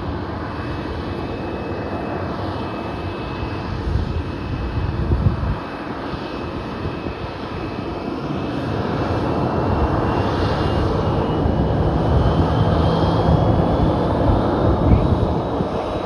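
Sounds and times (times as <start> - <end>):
jet engines roaring: 0.0 - 16.0
high fan whine: 8.7 - 16.0.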